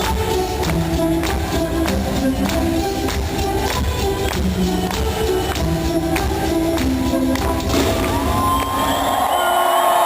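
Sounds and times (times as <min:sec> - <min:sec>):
crowd cheering and whistling: 0:07.7 - 0:10.0.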